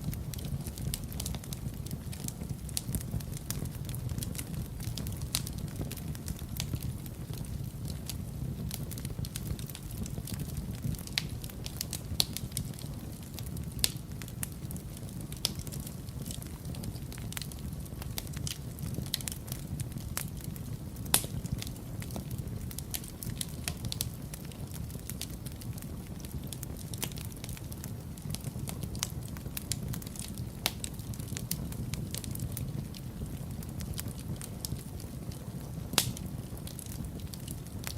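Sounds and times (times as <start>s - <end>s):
low rumble of flames: 0.0s - 37.9s
wood fire crackling: 0.0s - 37.9s
sharp pops and snaps: 36.0s - 36.2s.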